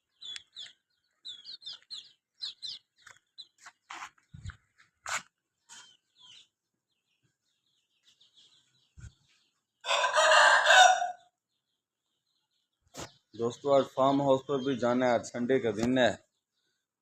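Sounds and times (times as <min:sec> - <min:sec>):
faint chirps and clicks: 0:00.1 - 0:04.6
rooster crowing: 0:09.8 - 0:11.3.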